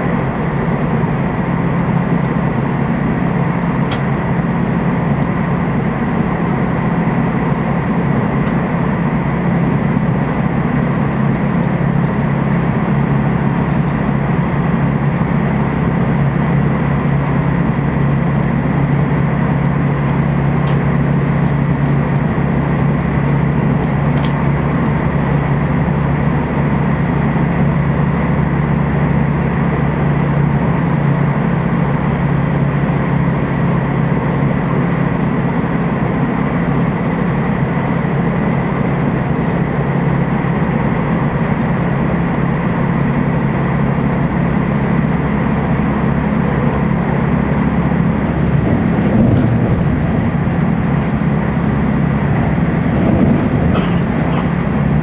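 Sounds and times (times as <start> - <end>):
train rumbling on rails: 0.0 - 55.0
strong low hum: 36.7 - 55.0.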